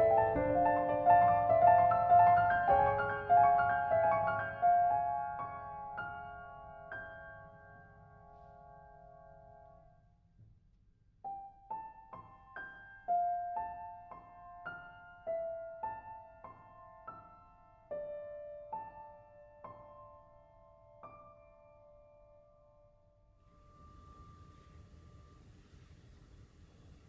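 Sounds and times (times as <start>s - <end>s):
slow solo piano notes: 0.0s - 9.9s.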